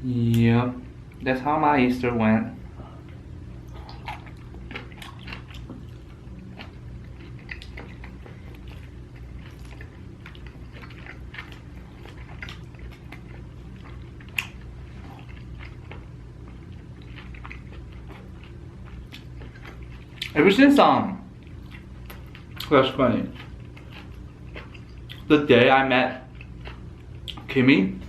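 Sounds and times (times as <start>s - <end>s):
mouth chewing and biting: 3.7s - 20.4s.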